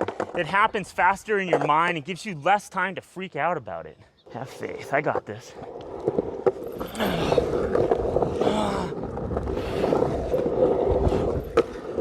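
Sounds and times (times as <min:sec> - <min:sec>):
skateboard clack: 0:00.0 - 0:02.0
skateboard wheels rolling on ramp: 0:05.1 - 0:12.0.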